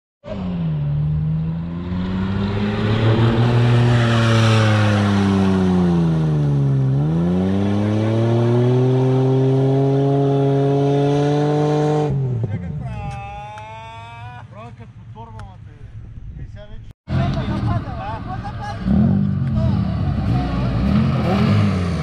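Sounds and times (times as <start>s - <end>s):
engine revving hard: 0.3s - 12.4s, 18.8s - 22.0s
rushing noise: 1.3s - 6.4s.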